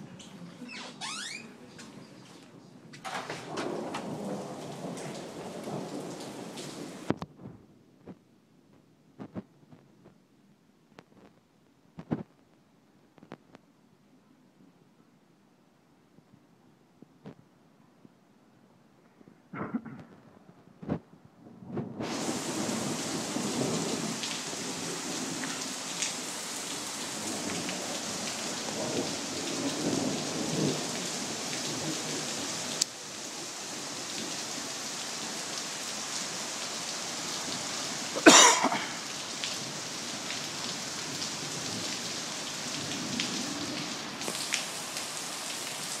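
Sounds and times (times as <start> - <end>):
heavy rain falling: 0.0 - 8.2, 21.6 - 46.0
thunder rumbling: 3.0 - 7.9, 19.6 - 25.4
loud thunderclap: 3.1 - 7.6.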